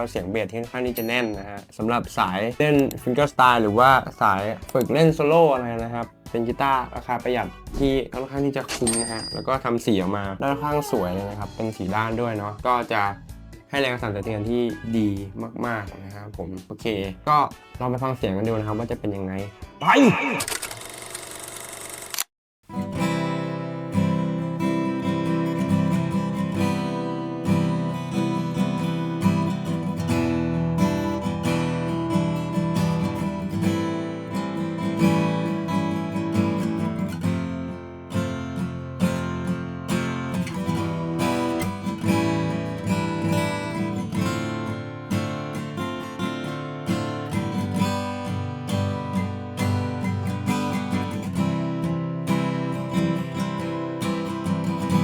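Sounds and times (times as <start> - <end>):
acoustic guitar strummed in chords: 22.7 - 55.0.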